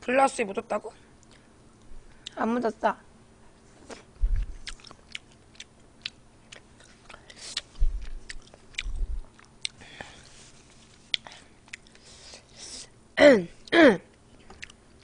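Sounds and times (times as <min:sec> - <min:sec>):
woman chewing: 0:03.9 - 0:12.5, 0:14.4 - 0:14.8
dull low thumps: 0:04.2 - 0:04.6, 0:07.8 - 0:09.3.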